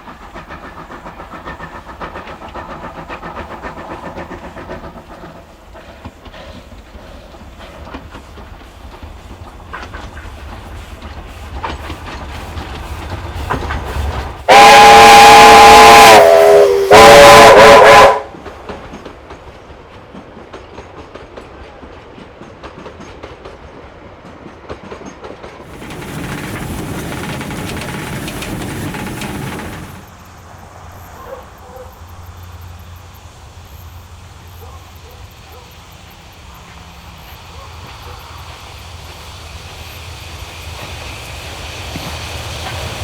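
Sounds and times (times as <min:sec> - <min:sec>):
train clattering on rails: 0:00.0 - 0:43.0
steam whistle blasts: 0:14.5 - 0:18.4.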